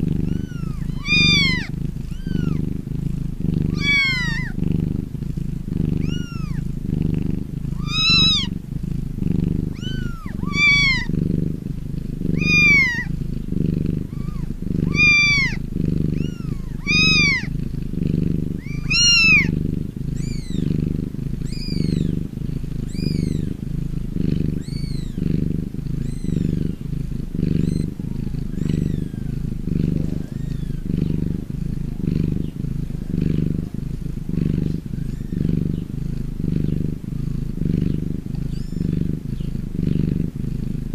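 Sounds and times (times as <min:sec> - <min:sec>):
high-pitched kitten mews: 0:00.0 - 0:02.6, 0:03.7 - 0:04.6, 0:06.0 - 0:06.6, 0:07.8 - 0:08.5, 0:09.7 - 0:11.1, 0:12.3 - 0:13.1, 0:14.1 - 0:17.5, 0:18.6 - 0:19.5, 0:20.2 - 0:20.6, 0:21.4 - 0:22.1, 0:22.9 - 0:23.6, 0:24.6 - 0:25.2
cat purring: 0:00.0 - 0:40.9.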